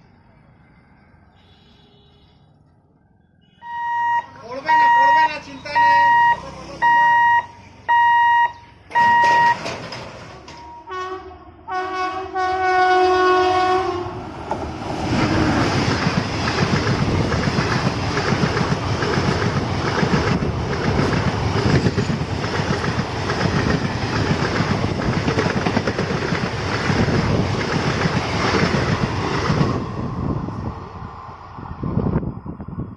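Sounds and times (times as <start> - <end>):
electronic warning beeper: 3.6 - 9.7
train wheels clacking over rail joints: 9.0 - 10.7, 15.2 - 29.6
train horn blast: 10.5 - 14.2.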